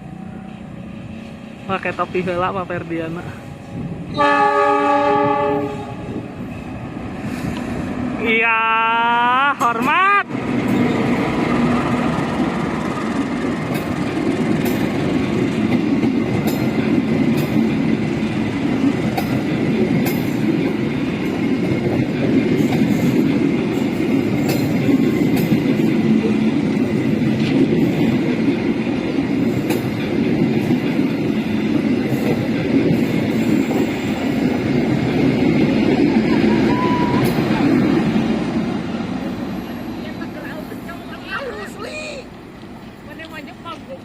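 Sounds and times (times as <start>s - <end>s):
train carriages rumbling: 0.0s - 44.0s
wheels clacking over rail joints: 9.6s - 36.3s.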